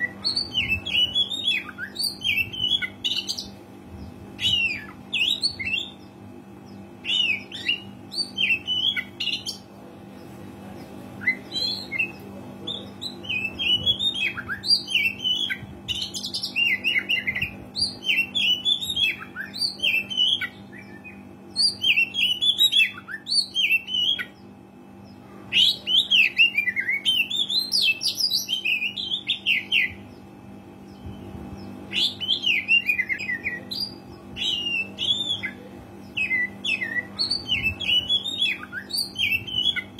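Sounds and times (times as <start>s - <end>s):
magpie-robin singing: 0.0s - 30.3s, 30.9s - 39.9s
steady low hum: 0.0s - 39.9s.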